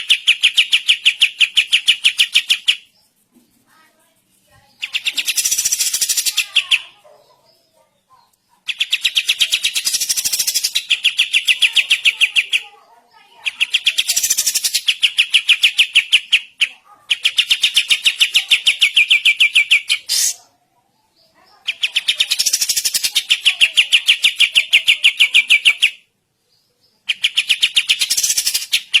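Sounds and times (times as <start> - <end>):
bulbul singing rattling trills: 4.6 - 7.6, 8.7 - 16.6, 21.2 - 26.0, 26.9 - 29.0.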